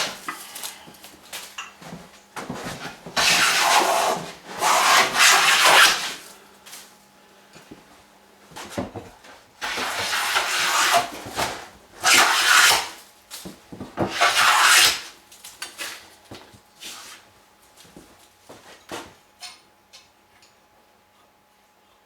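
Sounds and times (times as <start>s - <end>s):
hand plane shaving wood: 3.2s - 6.2s, 9.6s - 13.0s, 14.0s - 15.1s.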